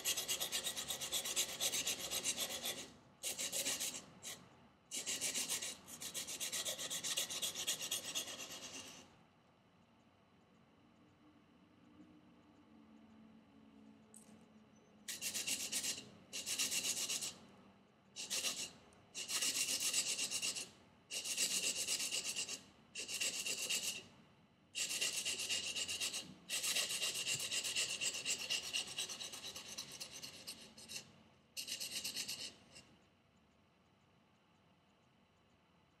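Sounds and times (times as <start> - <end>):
knife rasping on sandpaper: 0.0 - 9.0, 15.1 - 17.4, 18.2 - 24.0, 24.8 - 31.0, 31.6 - 32.5.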